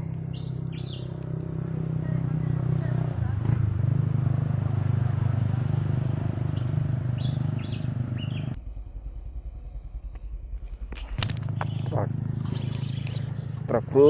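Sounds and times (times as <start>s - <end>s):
bird chirps: 0.0s - 1.4s, 6.4s - 8.6s, 11.5s - 13.7s
faint low rumble: 8.2s - 14.0s
small engine running: 11.2s - 14.0s.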